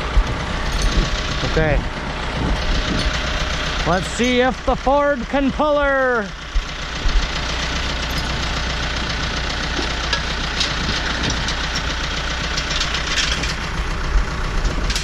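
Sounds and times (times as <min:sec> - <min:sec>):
metal clanks: 0:00.0 - 0:04.6, 0:07.1 - 0:14.0, 0:14.6 - 0:15.0
tractor diesel engine running: 0:00.0 - 0:15.0.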